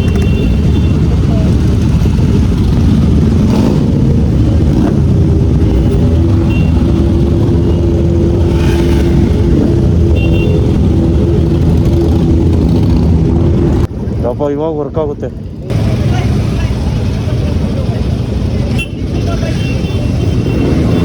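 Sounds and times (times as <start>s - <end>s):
vehicle engine running: 0.0s - 13.9s.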